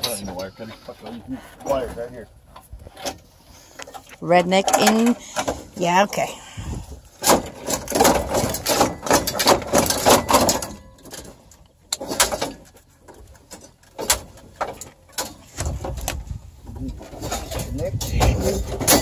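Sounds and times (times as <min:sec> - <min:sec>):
plastic parts clattering and cracking: 0:07.2 - 0:19.0.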